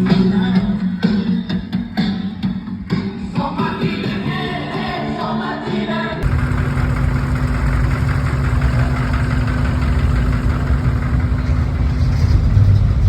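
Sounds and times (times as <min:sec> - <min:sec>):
car engine idling: 0:06.2 - 0:13.0.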